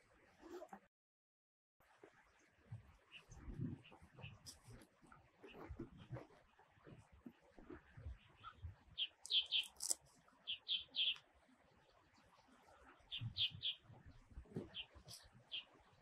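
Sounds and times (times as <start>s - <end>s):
bird chirping: 8.0s - 11.2s, 13.0s - 13.9s, 14.6s - 15.8s.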